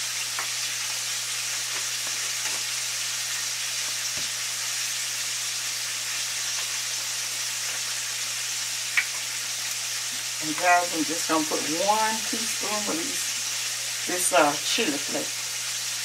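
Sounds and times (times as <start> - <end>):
chicken sizzling in hot oil: 0.0 - 16.0.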